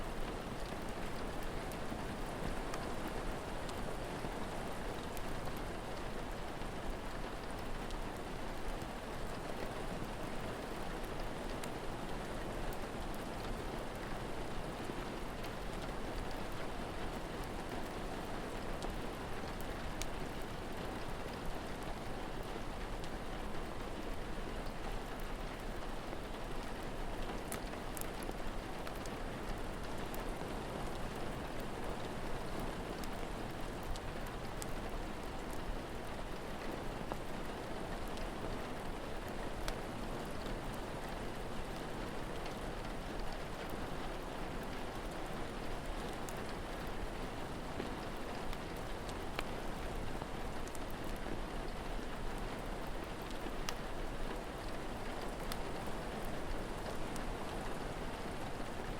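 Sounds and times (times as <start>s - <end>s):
steady rain falling: 0.0s - 58.9s
wood fire popping and crackling: 26.5s - 31.7s, 45.9s - 47.2s, 50.6s - 51.2s, 52.6s - 56.2s.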